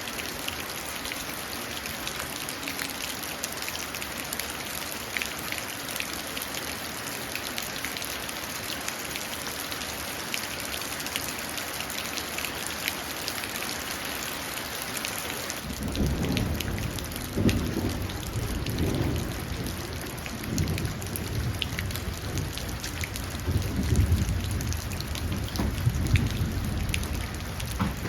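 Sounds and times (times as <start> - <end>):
rain pattering into a puddle: 0.0 - 28.0
low rumble of thunder: 15.6 - 28.0.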